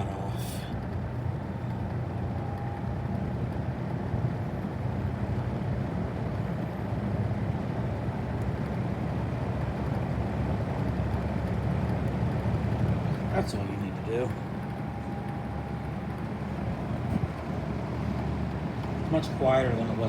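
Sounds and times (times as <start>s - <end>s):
fan motor hum: 8.4s - 20.0s.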